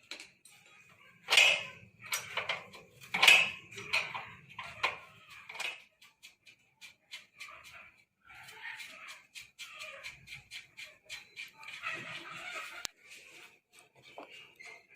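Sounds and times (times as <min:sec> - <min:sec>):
metal tools clinking and knocking: 0:01.3 - 0:05.8.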